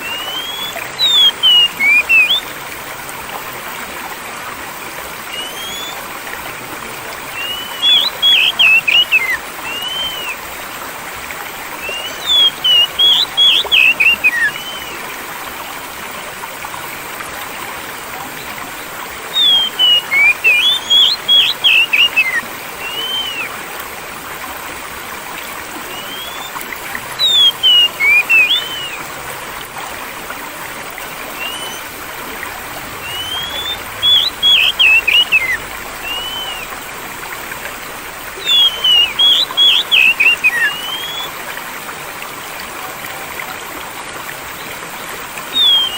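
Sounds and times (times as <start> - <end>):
songbird chirping: 0.0 - 2.5, 5.3 - 6.0, 7.3 - 10.4, 11.8 - 15.0, 19.2 - 23.5, 25.8 - 29.0, 31.3 - 31.8, 33.0 - 36.7, 38.4 - 41.4, 45.5 - 45.9
stream water flowing: 0.0 - 45.9.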